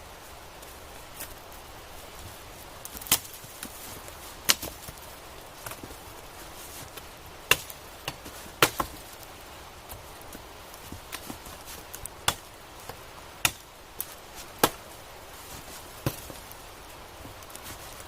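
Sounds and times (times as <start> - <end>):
axe chopping wood: 4.5 - 4.8, 7.5 - 9.0, 12.2 - 13.7, 14.6 - 14.8, 16.0 - 16.4.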